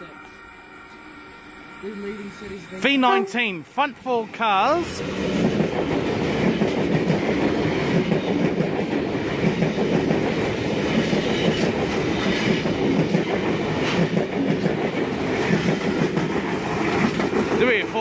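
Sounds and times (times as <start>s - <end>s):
train wheel-and-rail noise: 4.0s - 18.0s.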